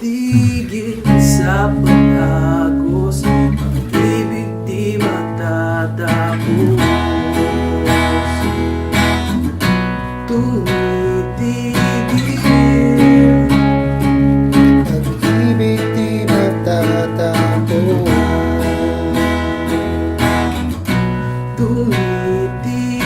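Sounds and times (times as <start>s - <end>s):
strummed acoustic guitar: 0.0s - 23.0s
gliding melody line: 0.4s - 7.9s, 12.2s - 16.8s.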